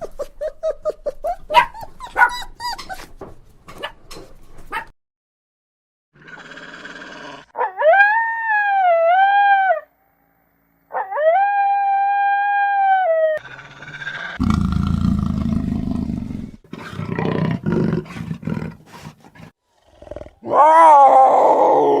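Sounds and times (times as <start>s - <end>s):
animal growling: 6.2s - 7.5s, 13.4s - 22.0s
animal howling: 6.2s - 9.9s, 10.9s - 14.6s, 20.4s - 22.0s.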